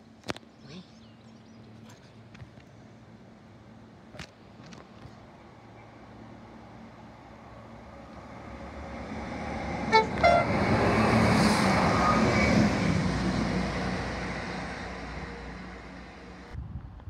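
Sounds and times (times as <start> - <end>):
train rumbling past: 5.2 - 16.6
train horn notes: 9.8 - 10.8.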